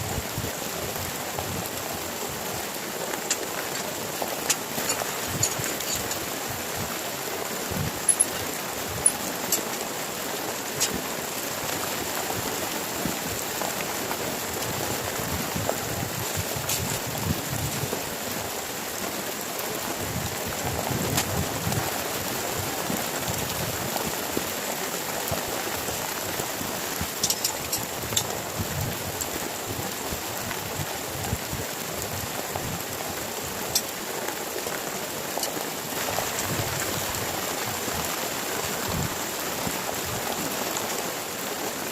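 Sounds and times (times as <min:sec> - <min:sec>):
heavy rain falling: 0:00.0 - 0:41.9
sharp taps of raindrops: 0:03.1 - 0:06.6, 0:10.6 - 0:11.1, 0:20.9 - 0:21.8, 0:25.2 - 0:30.6, 0:32.6 - 0:37.1.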